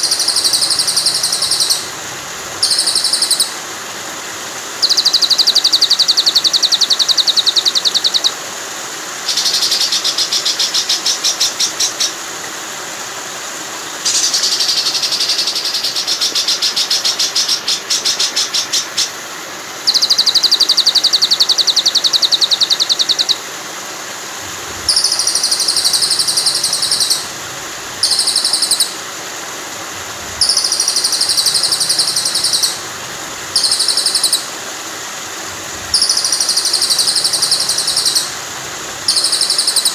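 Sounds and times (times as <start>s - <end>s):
songbird trills: 0.0s - 2.0s, 2.6s - 3.6s, 4.8s - 8.4s, 9.2s - 12.2s, 14.0s - 19.2s, 19.9s - 23.5s, 24.9s - 27.3s, 28.0s - 29.0s, 30.4s - 32.8s, 33.5s - 34.5s, 35.9s - 38.4s, 39.1s - 39.9s
running water: 0.0s - 39.9s.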